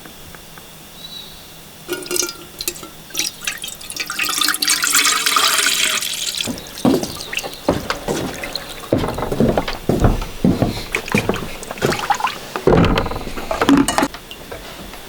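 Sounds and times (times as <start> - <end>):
water pouring into a vessel: 1.9 - 9.8, 10.9 - 12.5
cookware knocking and clinking: 1.9 - 14.6.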